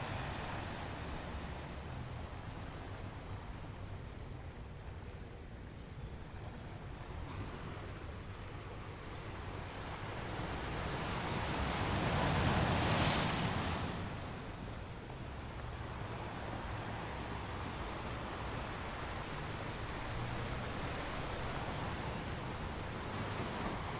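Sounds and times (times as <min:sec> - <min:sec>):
low rumble of the sea: 0:00.0 - 0:23.9
wave breaking and washing back: 0:09.2 - 0:23.9.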